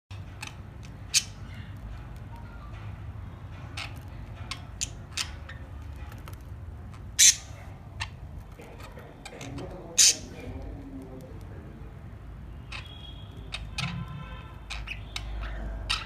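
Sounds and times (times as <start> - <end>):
budgerigars chirping: 0.2 - 1.8, 3.6 - 6.0, 6.9 - 10.5, 12.6 - 16.0
budgerigar squawks: 7.2 - 8.2, 10.0 - 10.3.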